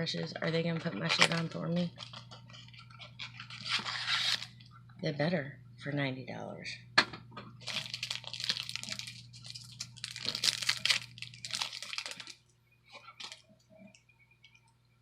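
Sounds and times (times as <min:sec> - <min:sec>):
packaging crinkling: 0:01.0 - 0:04.6, 0:07.6 - 0:13.6.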